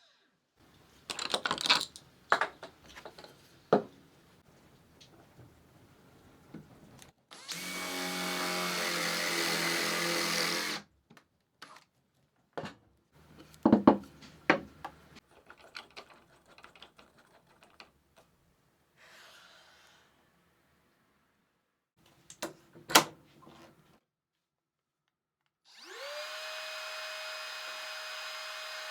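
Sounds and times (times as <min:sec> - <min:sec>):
wooden parts clicking: 0:01.0 - 0:03.4, 0:13.3 - 0:18.3
power tool motor running: 0:07.4 - 0:10.8, 0:25.7 - 0:28.9.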